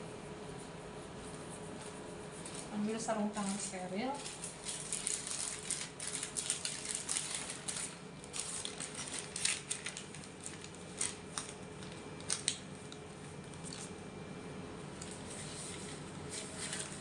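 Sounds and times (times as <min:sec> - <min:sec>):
glove wrapper crinkling: 0:04.2 - 0:14.0.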